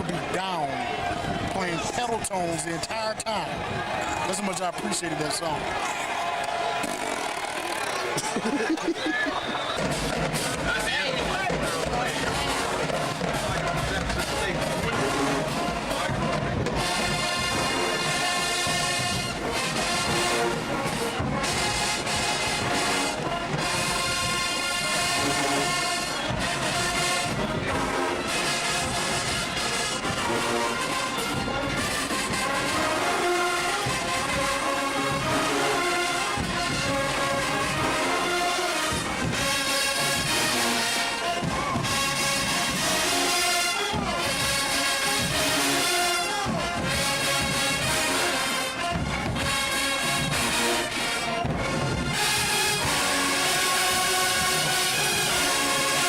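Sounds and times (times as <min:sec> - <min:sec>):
brass band playing: 0:00.0 - 0:56.0
drum beats: 0:00.0 - 0:56.0.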